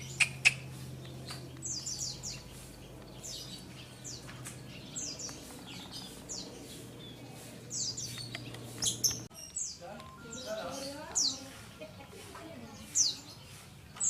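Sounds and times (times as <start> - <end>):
steady low hum: 0.0 - 9.3
birds chirping: 0.0 - 14.0.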